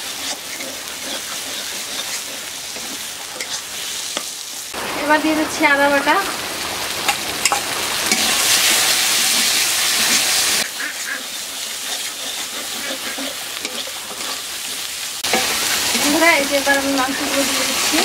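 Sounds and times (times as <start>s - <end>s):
metal spatula scraping a pan: 0.0s - 4.5s, 7.4s - 18.0s
spice paste sizzling in oil: 0.0s - 18.0s.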